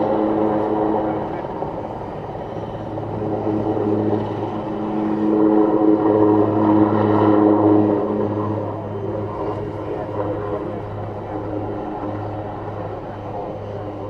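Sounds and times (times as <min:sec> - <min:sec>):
helicopter in flight: 0:00.0 - 0:14.0.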